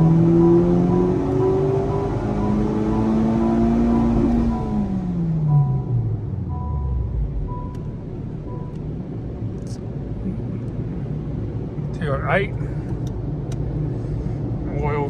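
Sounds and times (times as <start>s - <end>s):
car engine winding down: 0.0s - 10.8s.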